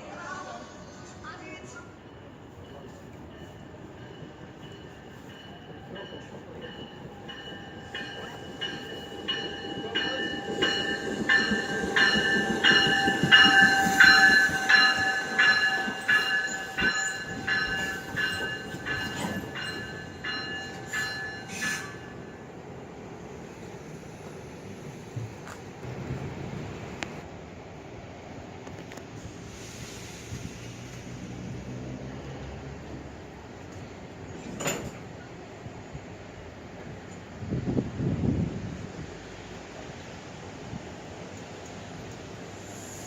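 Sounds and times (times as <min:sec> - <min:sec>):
train wheels clicking over rail joints: 0:33.7 - 0:35.2.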